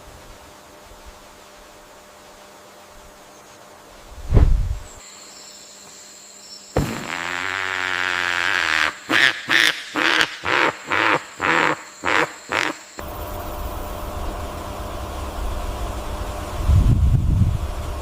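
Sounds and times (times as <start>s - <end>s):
animal calling harshly: 8.3s - 12.9s.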